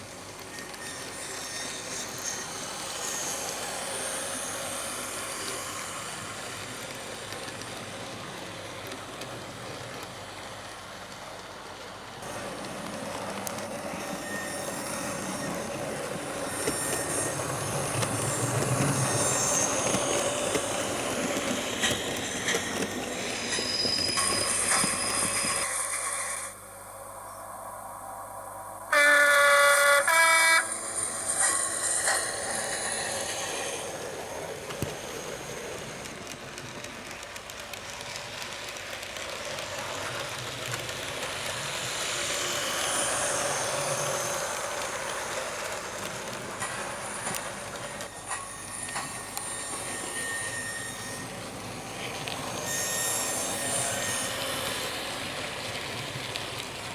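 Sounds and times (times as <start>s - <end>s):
model locomotive running sounds: 0.0s - 27.2s, 28.9s - 56.9s
locomotive horn blast: 28.9s - 31.0s.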